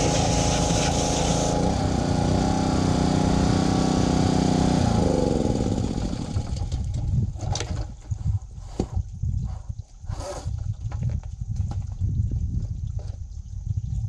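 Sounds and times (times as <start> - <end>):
water spray hissing: 0.0 - 1.6
small petrol engine running: 0.0 - 7.1.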